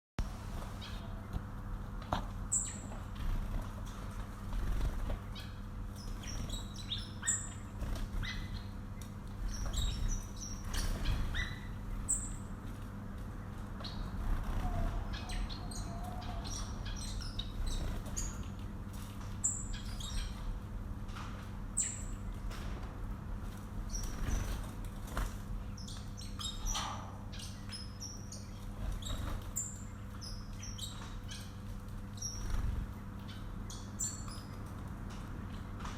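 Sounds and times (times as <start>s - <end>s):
steady low hum: 0.2s - 35.9s
pet birds chirping: 0.6s - 20.5s, 21.7s - 22.5s, 23.8s - 35.9s
wing flutters: 2.9s - 5.4s, 9.4s - 12.0s, 13.8s - 16.4s, 31.0s - 33.1s.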